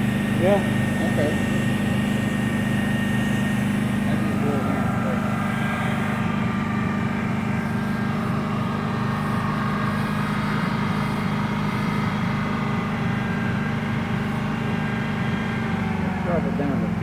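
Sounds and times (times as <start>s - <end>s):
engine running at raised speed: 0.0s - 17.0s.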